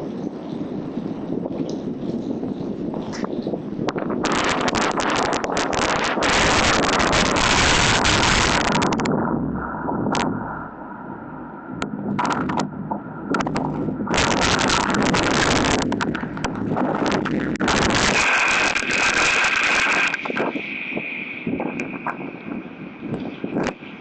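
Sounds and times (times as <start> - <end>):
gusty wind buffeting microphone: 0.0 - 24.0
steady high tone: 7.6 - 20.0.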